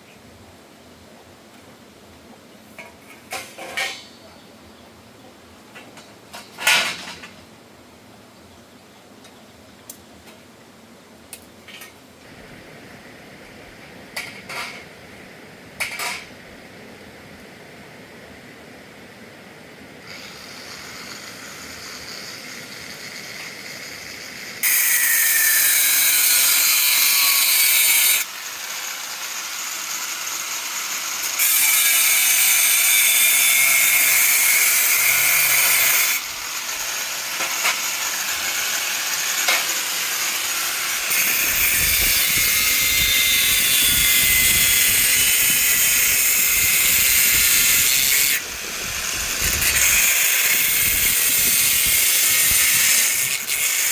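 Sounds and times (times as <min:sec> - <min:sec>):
harsh hissing metalwork on steel: 0:20.0 - 0:53.9.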